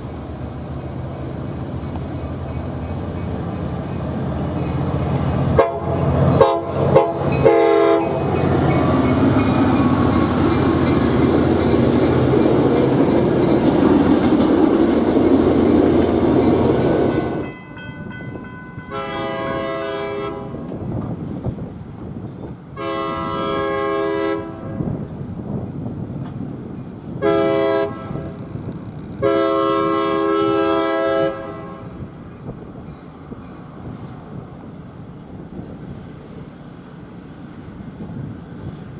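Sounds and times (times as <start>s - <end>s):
train rumbling and clacking: 0.0s - 38.9s
train horn: 5.5s - 8.3s, 18.8s - 20.7s, 22.8s - 25.0s, 27.2s - 28.4s, 29.2s - 32.1s.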